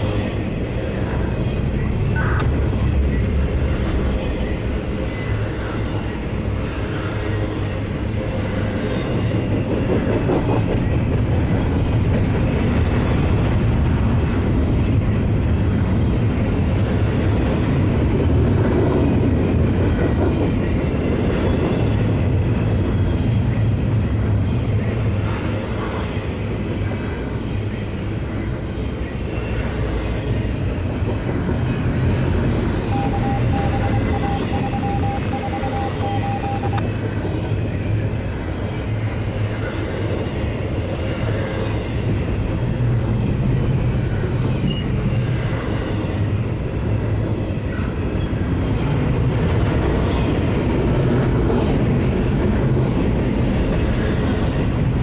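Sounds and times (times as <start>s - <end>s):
freight train wheels rumbling: 0.0s - 55.0s
thin steady tone: 32.9s - 36.8s.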